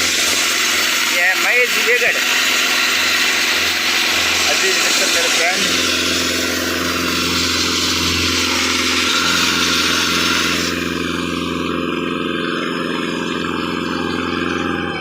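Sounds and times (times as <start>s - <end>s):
loud air hiss: 0.0s - 10.9s
air compressor engine hum: 0.0s - 15.0s
rock drill rig running: 0.0s - 15.0s.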